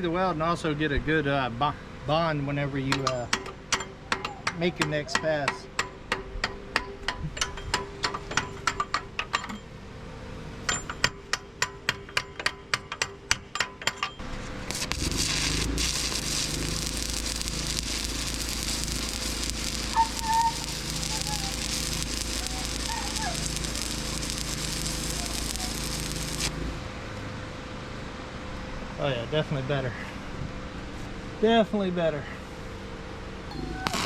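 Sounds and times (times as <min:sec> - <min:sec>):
welding arc crackling: 0:14.6 - 0:26.6, 0:33.6 - 0:34.0.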